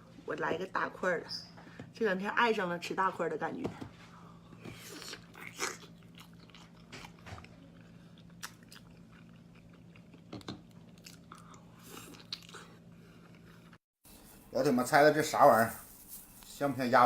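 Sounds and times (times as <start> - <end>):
faint steady hum: 0.0 - 17.0
person chewing wet food: 4.6 - 13.8.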